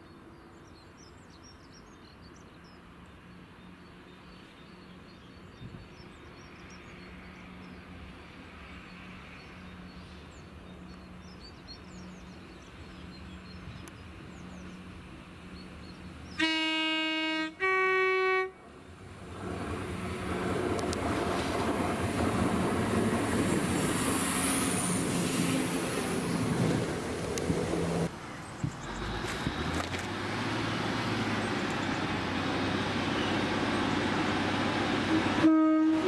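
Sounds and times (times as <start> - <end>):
train running noise: 2.6 - 36.0
train two-tone horn: 16.4 - 18.6, 35.1 - 36.0.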